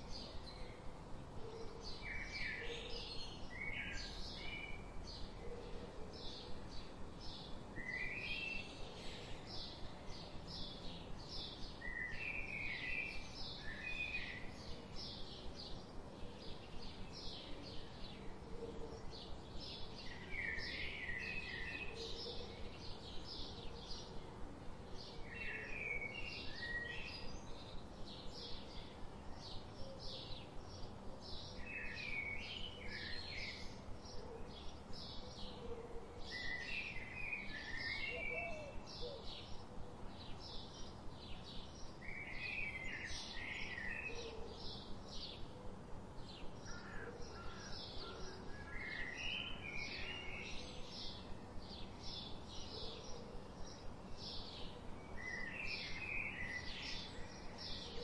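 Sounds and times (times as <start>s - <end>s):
steady background hiss: 0.0s - 58.0s.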